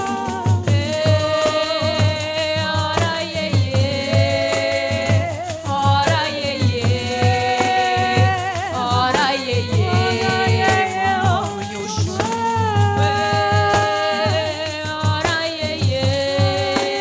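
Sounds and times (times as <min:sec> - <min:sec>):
frame drums thumping and jingling: 0:00.0 - 0:17.0
person singing long notes: 0:06.1 - 0:14.6.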